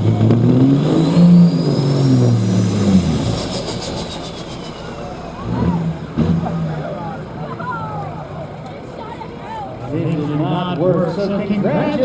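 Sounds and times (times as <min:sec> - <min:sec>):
diesel truck engine at full throttle: 0:00.0 - 0:12.0
turbo whistle: 0:00.8 - 0:06.0.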